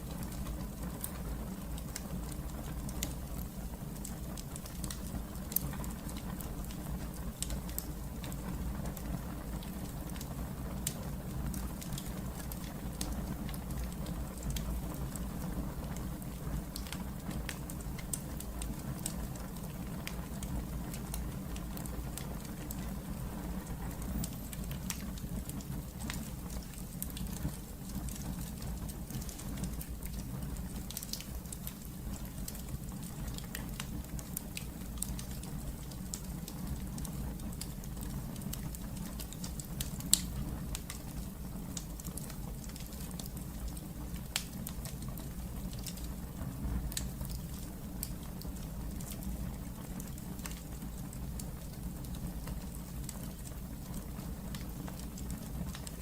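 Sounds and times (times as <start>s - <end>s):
fire crackling and popping: 0.0s - 56.0s
fire rumbling in fireplace: 0.0s - 56.0s.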